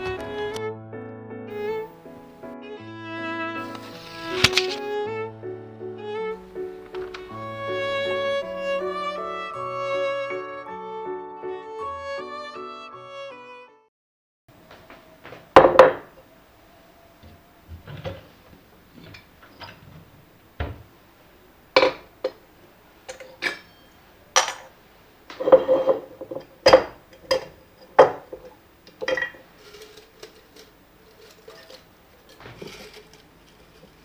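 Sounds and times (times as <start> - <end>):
dishes and cutlery clinking: 3.6 - 5.0, 6.4 - 9.4, 14.8 - 16.3, 17.2 - 20.9, 21.7 - 34.0.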